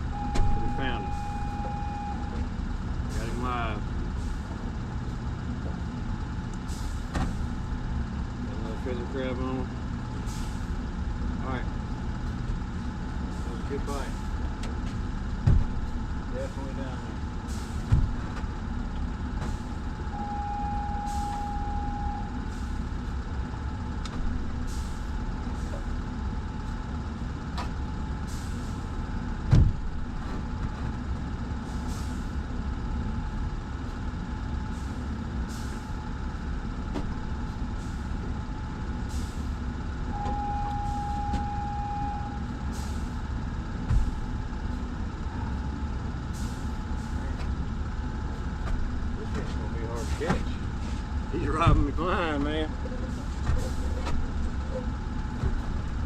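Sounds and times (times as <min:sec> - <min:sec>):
steady high tone: 0:00.0 - 0:02.4, 0:20.1 - 0:22.4, 0:40.1 - 0:42.5
machinery droning: 0:00.0 - 0:56.0.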